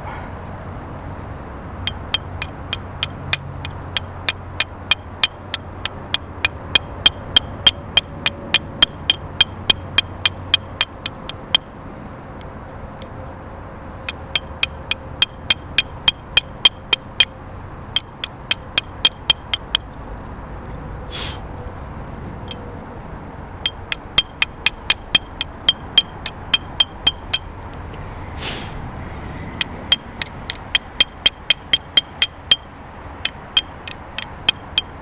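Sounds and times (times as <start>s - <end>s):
hammer tapping on metal: 1.8s - 11.7s, 14.0s - 19.9s, 23.6s - 27.6s, 29.6s - 35.0s.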